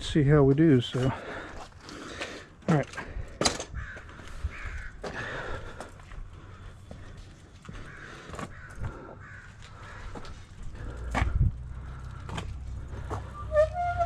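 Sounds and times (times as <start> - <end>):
birds cawing: 3.6 - 13.6.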